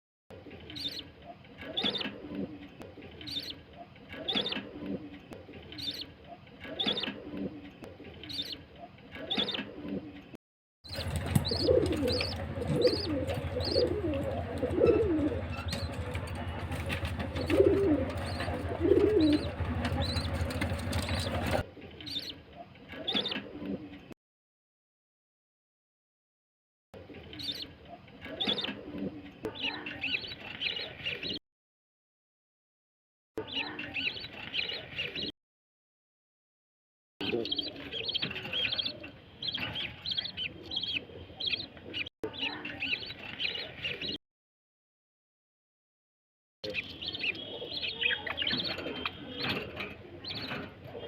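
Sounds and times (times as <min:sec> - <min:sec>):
caged birds calling: 0:00.6 - 0:09.8, 0:10.8 - 0:22.4, 0:37.2 - 0:44.2, 0:46.6 - 0:51.0
high bird chirps: 0:10.8 - 0:14.0
steady low hum: 0:11.0 - 0:21.6.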